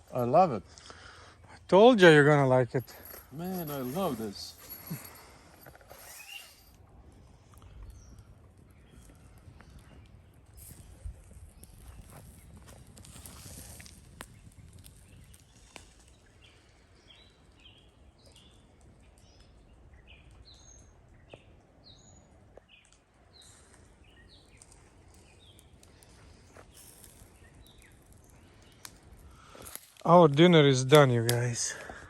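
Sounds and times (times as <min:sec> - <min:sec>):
faint bird chirping: 0:04.2 - 0:06.8.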